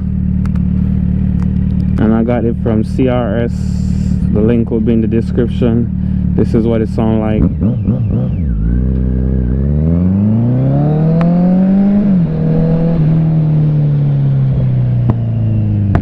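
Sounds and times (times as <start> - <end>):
exhaust pops: 0.0 - 9.2, 14.9 - 16.0
motorcycle engine revving: 0.0 - 16.0.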